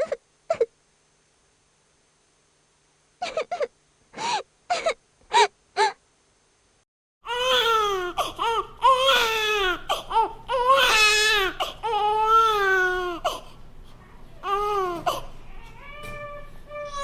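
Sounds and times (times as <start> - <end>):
baby crying: 7.3 - 13.4, 14.4 - 17.0.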